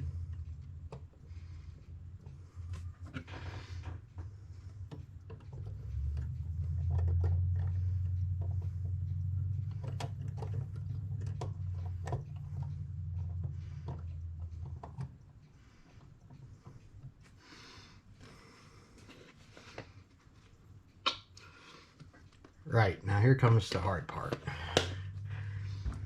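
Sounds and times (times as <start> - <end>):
small parts clicking and tapping: 0.0 - 17.4
low steady hum: 0.0 - 26.0.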